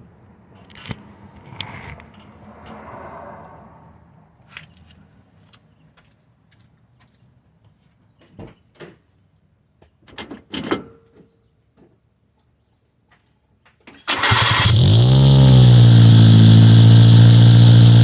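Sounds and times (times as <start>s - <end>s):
car engine running loud: 14.1s - 18.0s.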